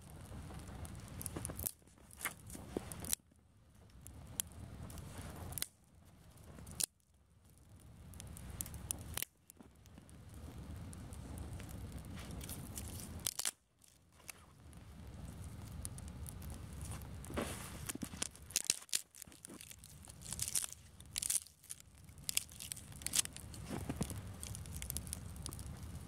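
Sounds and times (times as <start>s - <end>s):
campfire crackling and snapping: 0.0s - 26.0s
wind rumble on microphone: 10.0s - 13.2s.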